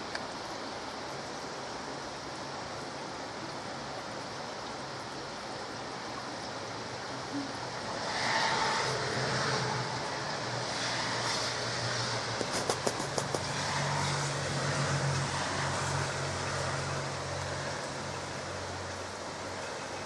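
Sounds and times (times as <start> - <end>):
light rain falling: 0.0 - 20.0
quick clicks: 12.4 - 13.4.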